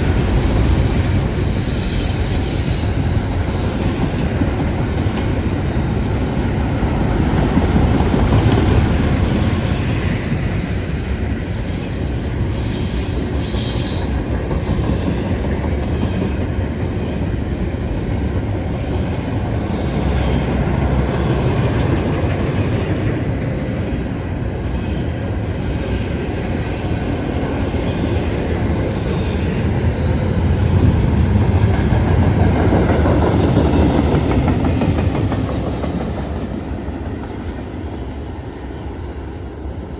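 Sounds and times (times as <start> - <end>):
train wheels rumbling on rails: 0.0 - 39.9
high wheel squeal: 0.1 - 6.5.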